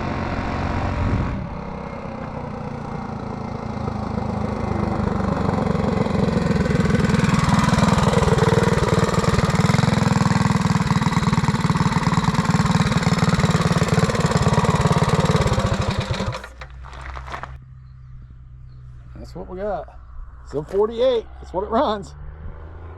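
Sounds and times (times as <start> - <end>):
small motorbike engine at full throttle: 0.0 - 17.6
low steady hum: 16.4 - 22.6.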